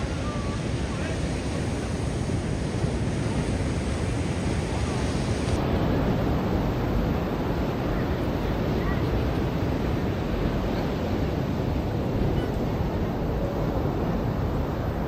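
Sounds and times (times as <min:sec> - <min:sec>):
ocean surf washing onto beach: 0:00.0 - 0:15.0.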